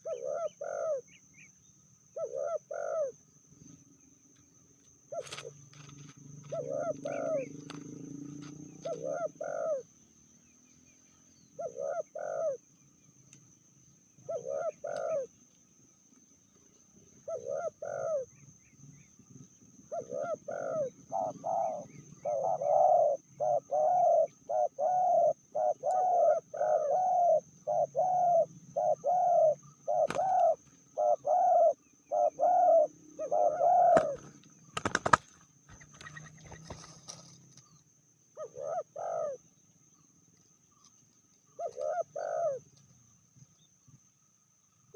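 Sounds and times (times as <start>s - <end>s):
dove cooing: 0.0s - 1.2s, 2.1s - 3.2s, 5.1s - 9.9s, 11.4s - 12.6s, 14.2s - 15.3s, 17.1s - 18.4s, 19.8s - 37.3s, 38.3s - 39.4s, 41.5s - 42.8s.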